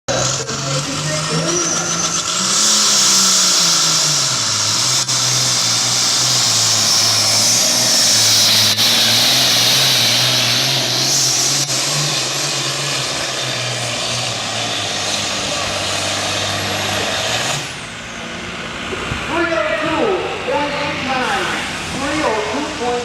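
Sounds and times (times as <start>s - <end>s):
high whine: 0.1s - 23.0s
tractor engine running flat out: 0.1s - 23.0s.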